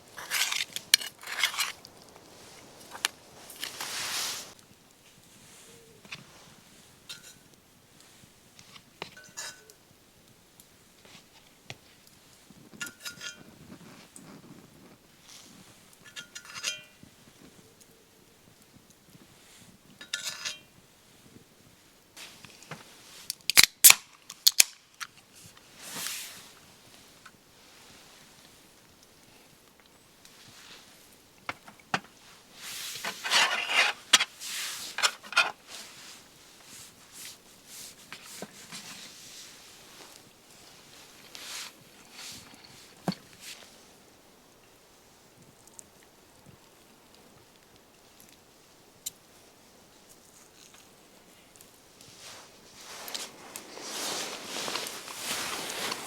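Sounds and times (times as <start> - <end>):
rustling: 0.0 - 9.7, 24.3 - 44.0, 49.4 - 56.0
light scraping: 0.1 - 4.6, 32.6 - 43.6, 52.1 - 56.0
cutlery clinking on metal dish: 9.0 - 9.8, 12.8 - 13.6, 16.0 - 17.0, 20.0 - 20.7.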